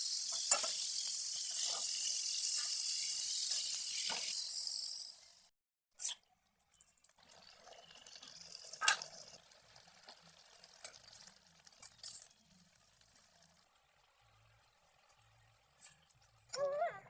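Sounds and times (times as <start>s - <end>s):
faint liquid sounds: 6.0s - 17.0s.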